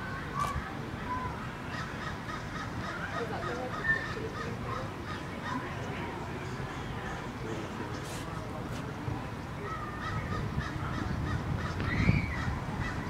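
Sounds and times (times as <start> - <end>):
birds calling: 9.3 - 13.0.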